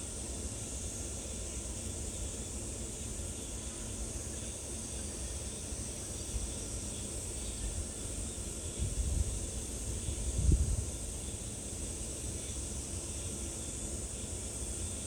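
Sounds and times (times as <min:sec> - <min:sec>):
wind rumble on microphone: 0:08.8 - 0:11.0.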